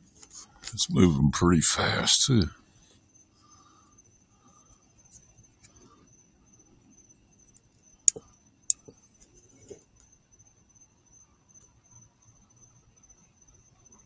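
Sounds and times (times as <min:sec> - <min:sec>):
sharp clicks: 0:08.1 - 0:08.9.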